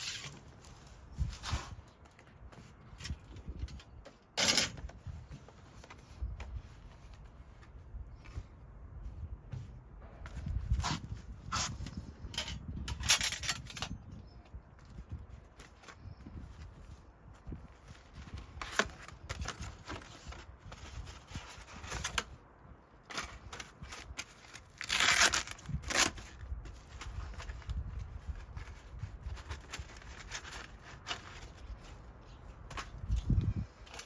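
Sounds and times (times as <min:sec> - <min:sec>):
packaging rustling and crinkling: 0:14.7 - 0:22.4, 0:23.0 - 0:34.0
packaging tearing: 0:23.1 - 0:27.6.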